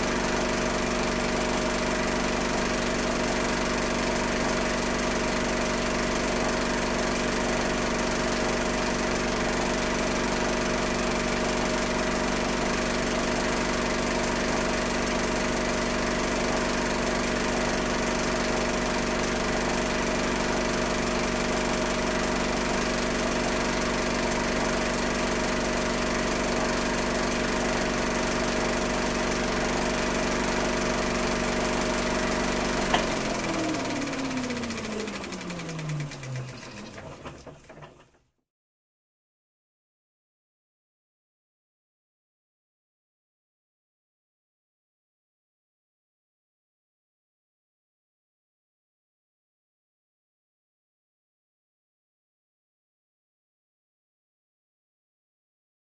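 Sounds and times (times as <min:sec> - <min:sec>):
film projector whirring: 0:00.0 - 0:38.1.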